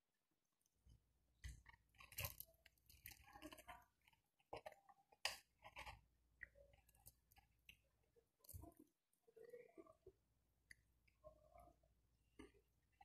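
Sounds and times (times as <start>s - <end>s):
person chewing: 1.4s - 8.9s
crispy fried chicken crackling: 1.4s - 9.8s.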